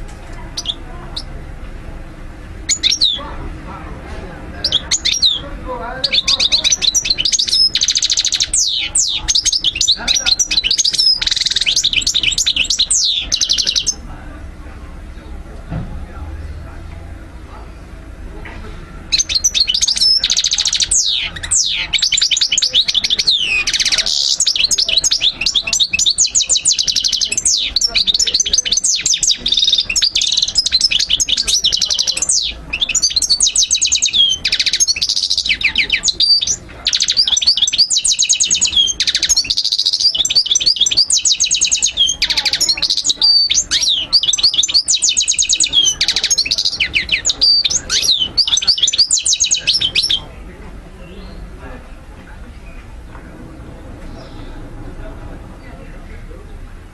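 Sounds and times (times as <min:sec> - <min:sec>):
goldfinch singing: 0:00.4 - 0:01.4, 0:02.6 - 0:03.4, 0:04.6 - 0:14.1, 0:19.0 - 0:50.4.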